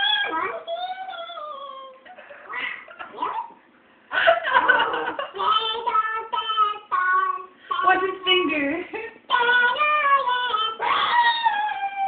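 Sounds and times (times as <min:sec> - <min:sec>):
high-pitched laughing and giggling: 0:01.7 - 0:03.4, 0:04.1 - 0:05.4.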